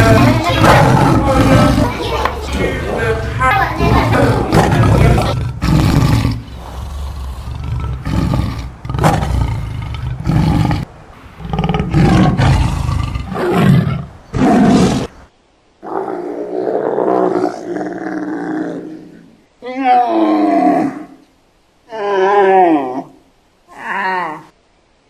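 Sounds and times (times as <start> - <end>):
animal roaring calls: 0.0 - 15.1, 15.8 - 21.2.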